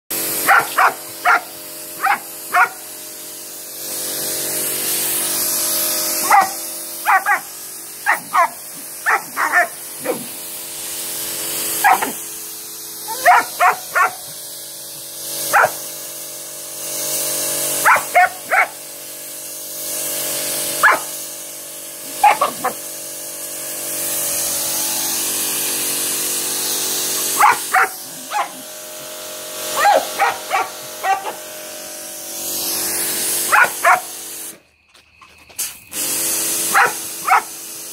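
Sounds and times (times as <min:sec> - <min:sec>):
pressure washer spray hissing: 0:00.1 - 0:34.6, 0:35.5 - 0:37.9
pressure washer motor humming: 0:00.1 - 0:34.7, 0:35.6 - 0:37.9
dog barking: 0:00.4 - 0:02.8, 0:06.2 - 0:10.3, 0:11.8 - 0:12.2, 0:13.1 - 0:14.3, 0:15.5 - 0:15.8, 0:17.8 - 0:18.8, 0:20.8 - 0:21.2, 0:22.1 - 0:22.8, 0:27.2 - 0:28.6, 0:29.8 - 0:31.4, 0:33.5 - 0:34.1, 0:36.7 - 0:37.5.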